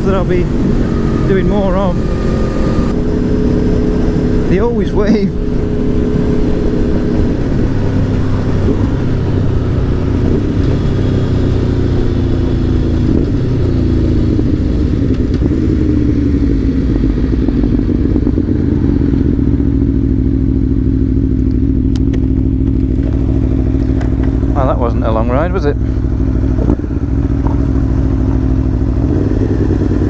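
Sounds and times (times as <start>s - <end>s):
motorcycle engine slowing: 0.0s - 30.0s.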